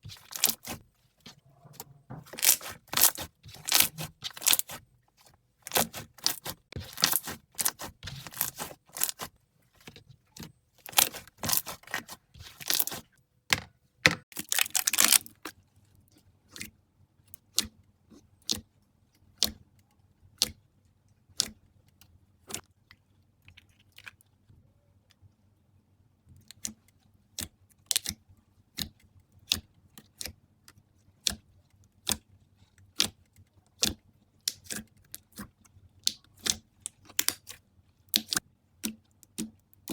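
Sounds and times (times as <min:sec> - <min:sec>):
slime crackling when squeezed: 0:02.4 - 0:04.8, 0:05.7 - 0:09.3.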